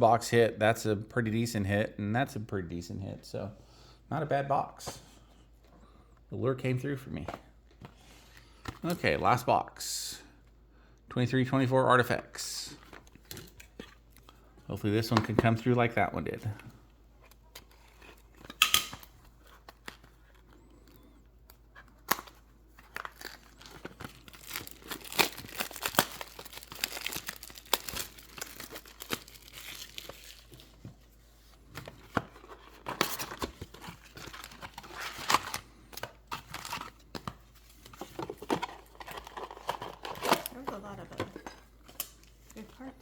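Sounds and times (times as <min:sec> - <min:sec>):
plastic wrapping tearing and crinkling: 0:22.0 - 0:30.8.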